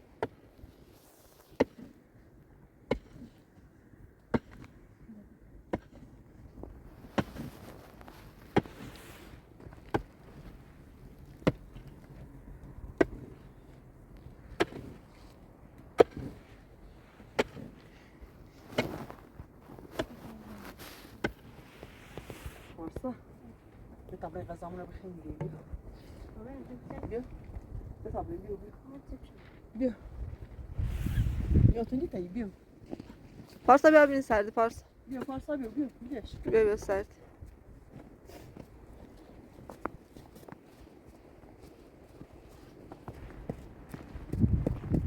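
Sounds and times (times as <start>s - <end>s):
scraping and rustling: 16.1s - 22.8s.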